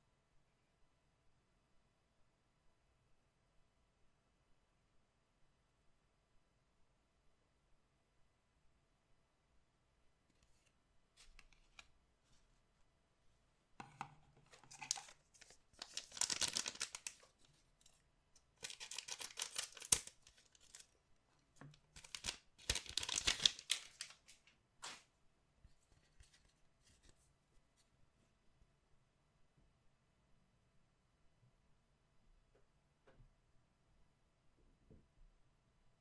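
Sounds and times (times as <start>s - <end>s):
packaging crinkling: 14.5s - 18.0s, 18.6s - 20.9s, 21.7s - 25.0s
packaging tearing: 14.6s - 17.5s, 18.6s - 20.9s, 21.9s - 25.0s.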